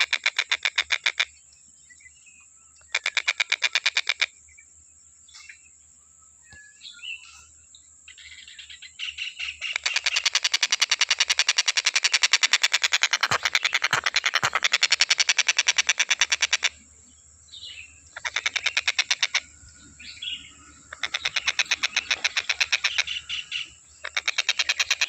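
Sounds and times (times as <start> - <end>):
kingfisher chirping: 9.0 - 16.8, 17.6 - 25.0.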